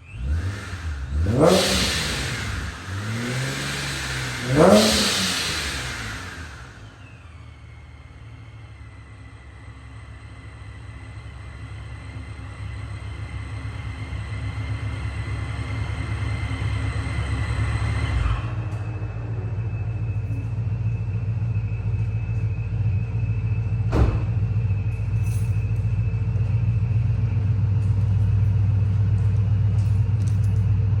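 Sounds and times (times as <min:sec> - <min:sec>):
deep exhaust rumble: 0:00.0 - 0:31.0
sharp knock: 0:23.9 - 0:24.4.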